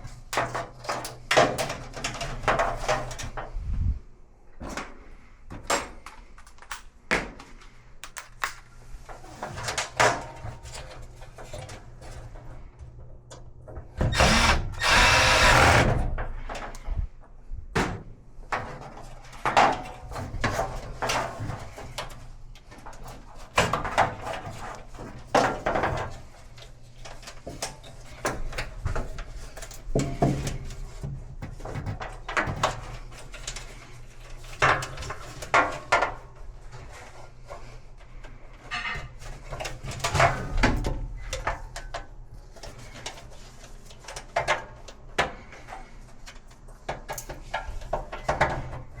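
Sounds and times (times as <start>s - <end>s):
tools knocking and clattering: 8.0s - 8.7s
cordless drill burst: 14.1s - 16.1s.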